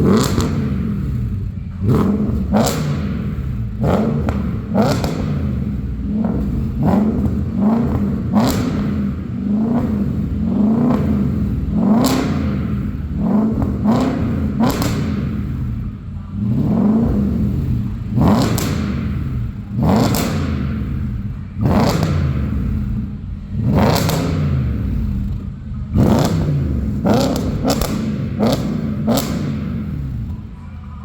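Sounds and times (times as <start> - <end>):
car engine revving: 0.0 - 31.0
exhaust cracks: 0.0 - 31.0.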